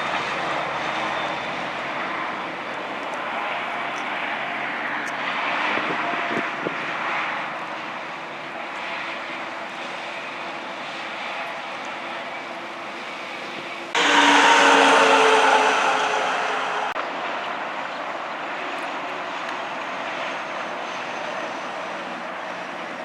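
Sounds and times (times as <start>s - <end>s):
loud engine humming: 13.6s - 17.4s
trucks driving past: 13.9s - 17.5s.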